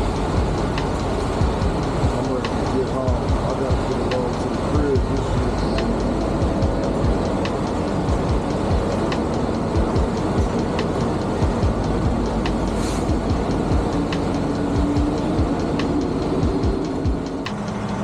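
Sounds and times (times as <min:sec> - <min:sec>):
diesel truck engine rumbling: 0:00.0 - 0:18.0
brief hiss: 0:12.8 - 0:13.1.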